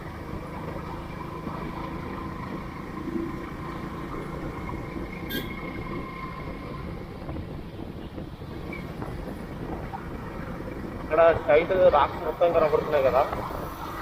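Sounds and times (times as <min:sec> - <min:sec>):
motorcycle engine running: 0:00.0 - 0:11.5
wind rushing over microphone: 0:00.1 - 0:14.0.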